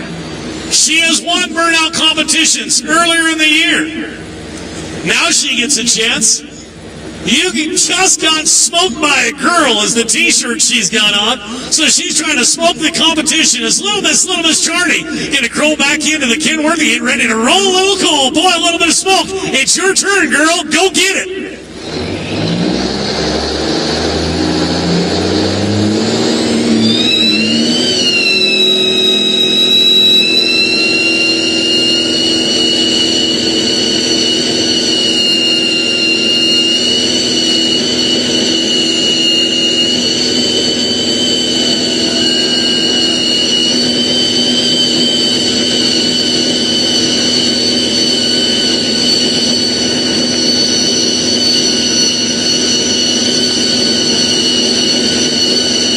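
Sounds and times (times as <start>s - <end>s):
tires squealing: 21.0s - 55.9s
diesel truck engine revving: 21.3s - 55.9s.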